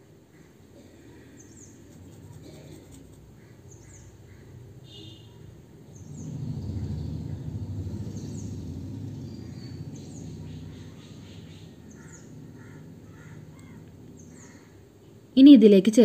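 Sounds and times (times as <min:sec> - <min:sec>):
low rumble: 0:05.8 - 0:15.3.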